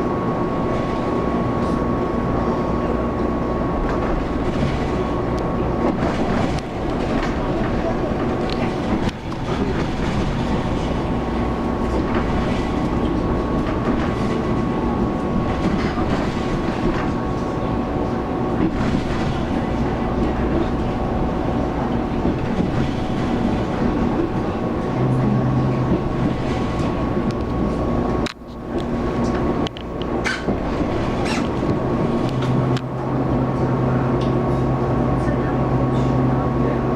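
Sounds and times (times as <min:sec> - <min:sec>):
train wheels rumbling on rail: 0:00.0 - 0:36.9.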